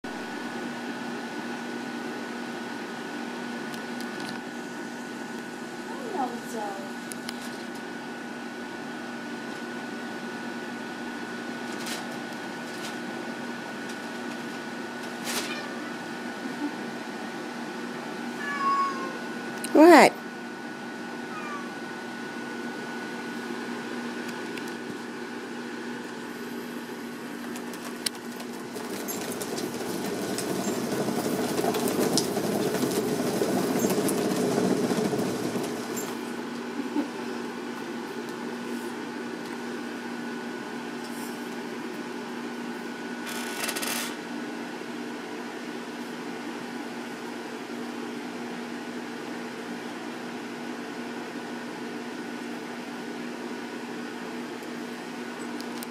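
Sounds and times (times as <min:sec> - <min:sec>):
steady mechanical hum: 0:00.0 - 0:55.9
cat exercise wheel whirring: 0:27.5 - 0:36.4, 0:43.2 - 0:44.2.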